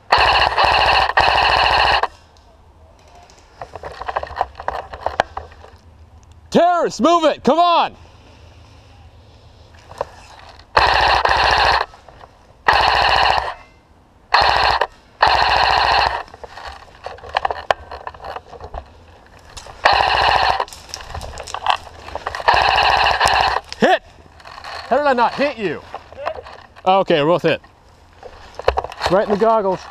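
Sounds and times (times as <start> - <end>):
airsoft rifle firing bursts: 0.0 - 2.1, 10.7 - 12.0, 12.7 - 13.6, 14.3 - 16.3, 19.8 - 20.7, 22.4 - 23.7.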